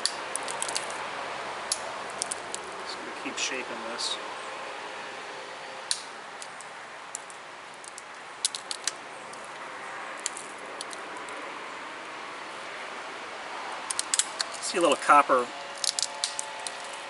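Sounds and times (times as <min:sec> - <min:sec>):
stone flakes clicking and snapping: 0:00.0 - 0:01.0, 0:01.7 - 0:02.7, 0:05.9 - 0:09.6, 0:10.2 - 0:11.3, 0:13.9 - 0:15.1, 0:15.7 - 0:17.0.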